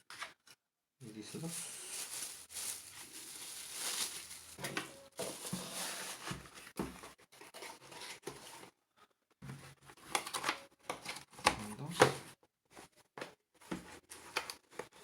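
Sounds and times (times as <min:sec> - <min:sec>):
plastic packaging rustling: 0:01.2 - 0:06.8.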